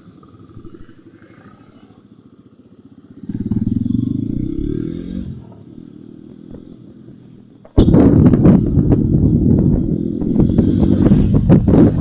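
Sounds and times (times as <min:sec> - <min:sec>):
motorcycle engine idling: 0:00.0 - 0:04.7, 0:05.3 - 0:07.9
motorcycle engine revving: 0:00.0 - 0:12.0.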